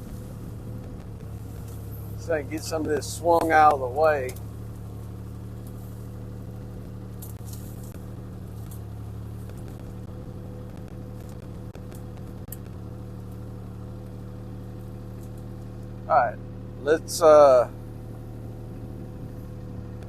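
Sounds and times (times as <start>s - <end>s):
excavator diesel engine running: 0.0s - 20.0s
sharp cracks and snaps: 3.4s - 16.0s.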